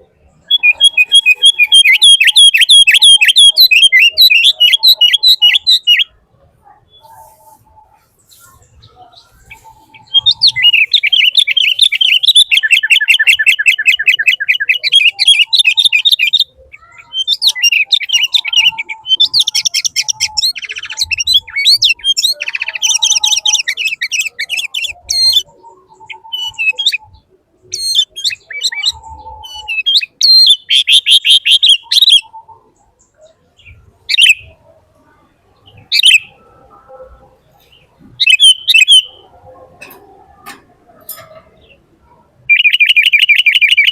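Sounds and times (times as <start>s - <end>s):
bird chirping: 0.0s - 43.9s.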